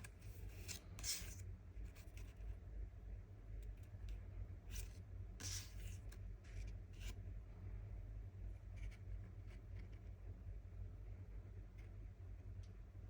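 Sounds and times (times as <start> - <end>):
cards sliding and rubbing: 0.0 - 1.4, 4.7 - 7.2
low steady hum: 0.0 - 13.0.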